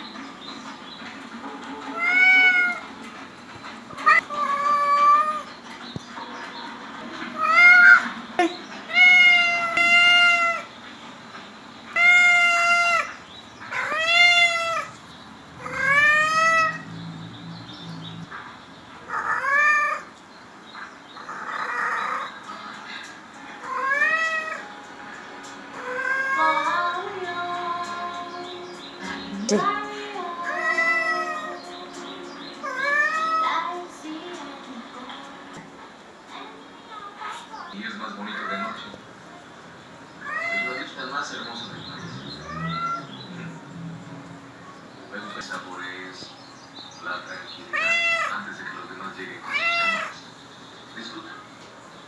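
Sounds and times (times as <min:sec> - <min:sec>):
cat meowing: 0:01.9 - 0:03.0, 0:03.9 - 0:05.5, 0:07.4 - 0:10.7, 0:11.9 - 0:15.0, 0:15.6 - 0:17.2, 0:19.1 - 0:20.1, 0:21.2 - 0:22.3, 0:23.6 - 0:24.6, 0:25.8 - 0:26.9, 0:30.4 - 0:31.7, 0:32.6 - 0:33.7, 0:37.2 - 0:39.0, 0:40.2 - 0:41.0, 0:42.0 - 0:44.2, 0:47.6 - 0:48.5, 0:49.4 - 0:50.3.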